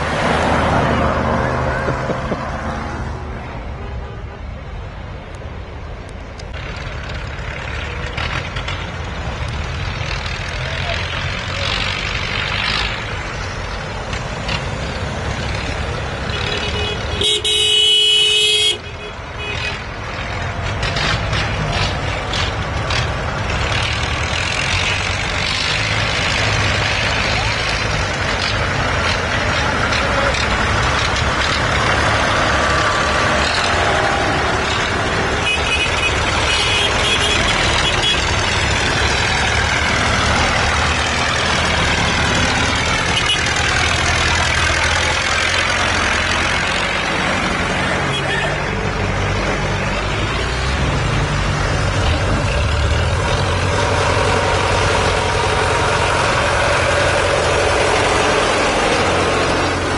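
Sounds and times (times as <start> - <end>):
tractor engines running: 0.0 - 59.9
horn sounding: 16.3 - 19.8, 35.4 - 38.4.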